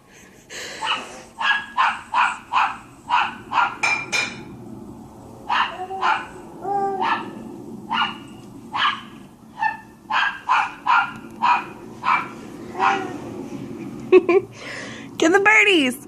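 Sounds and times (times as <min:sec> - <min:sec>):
dog barking: 0:00.8 - 0:03.9, 0:05.5 - 0:06.4, 0:07.0 - 0:13.2.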